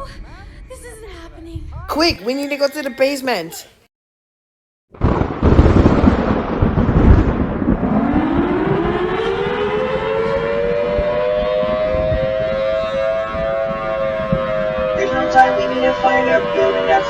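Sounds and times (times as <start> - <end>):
tornado siren wailing: 5.0 - 17.0.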